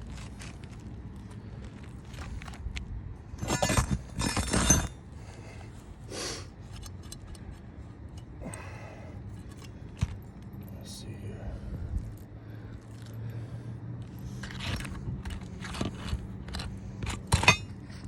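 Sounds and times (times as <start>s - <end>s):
light ticks and clinks: 9.3s - 11.1s
roof shingles crackling and scraping: 14.3s - 17.6s.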